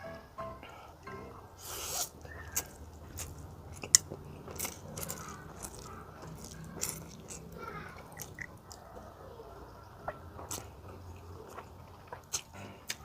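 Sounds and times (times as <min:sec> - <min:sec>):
crunchy snack chewing: 0:01.6 - 0:09.2, 0:10.0 - 0:13.0.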